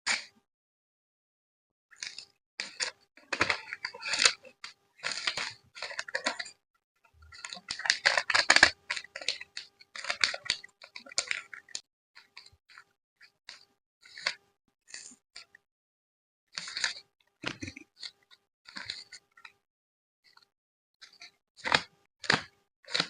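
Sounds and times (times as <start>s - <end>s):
plastic sleeves and paper crinkling: 2.0s - 6.6s, 7.3s - 12.8s, 16.6s - 19.3s.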